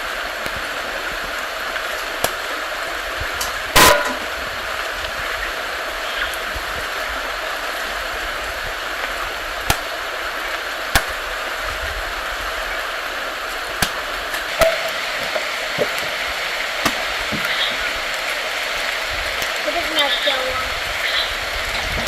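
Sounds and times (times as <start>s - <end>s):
outdoor hiss: 0.0s - 22.0s
stems snapping: 2.2s - 2.4s, 9.6s - 9.9s, 10.9s - 11.2s, 13.8s - 16.2s.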